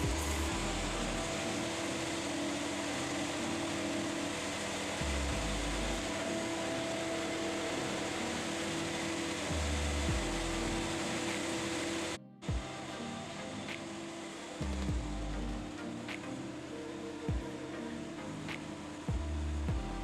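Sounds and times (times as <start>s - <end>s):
electric cooling fan running: 0.0s - 20.0s
low rumble: 14.6s - 15.7s.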